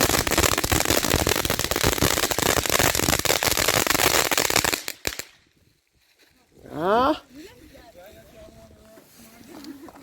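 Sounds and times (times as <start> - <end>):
firework crackling and popping: 0.0 - 5.5.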